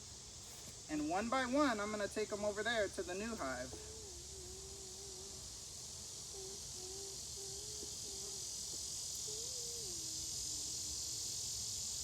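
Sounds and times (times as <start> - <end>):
high insect hiss: 0.0 - 12.0
honeybees buzzing: 3.8 - 11.5.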